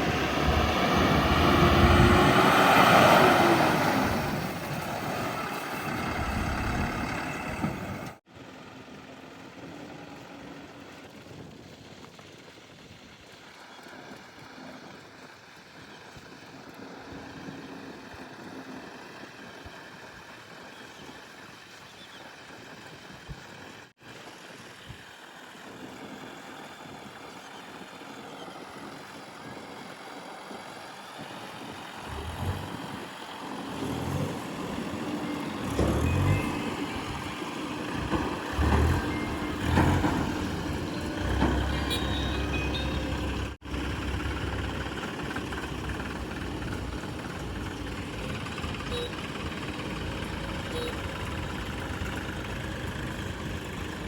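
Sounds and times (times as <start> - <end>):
heavy diesel machinery running: 0.0 - 8.2, 31.7 - 54.0.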